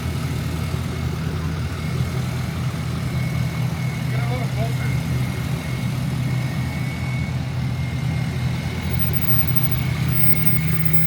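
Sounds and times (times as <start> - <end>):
truck engine idling: 0.0 - 11.0
thin high whine: 8.7 - 11.0.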